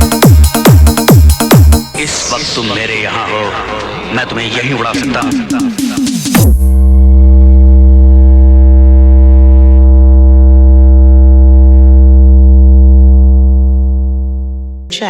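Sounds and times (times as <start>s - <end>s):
deep synthesized bass tone: 6.4s - 14.9s.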